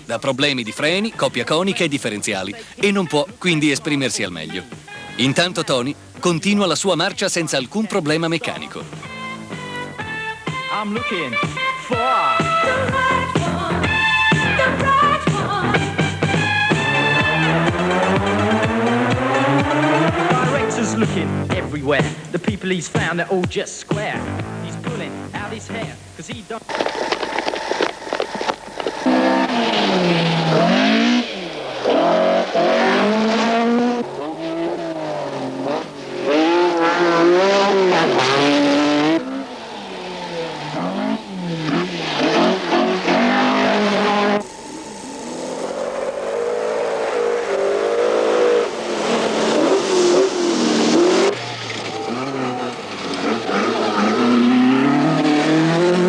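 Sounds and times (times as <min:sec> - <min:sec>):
rally car engines revving: 0:12.4 - 0:22.3, 0:26.6 - 0:56.0.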